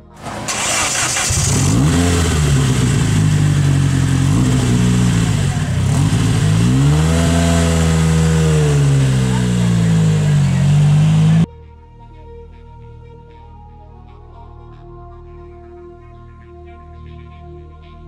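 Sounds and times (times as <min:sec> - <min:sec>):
sports car engine revving: 0:00.1 - 0:11.5.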